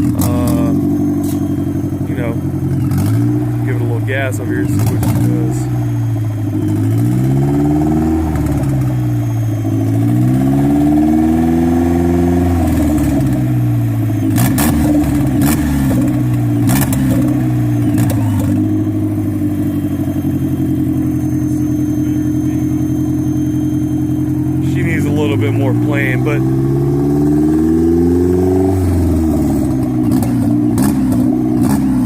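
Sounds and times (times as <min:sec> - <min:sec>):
car engine revving and idling: 0:00.0 - 0:32.0
sharp exhaust cracks: 0:00.0 - 0:32.0.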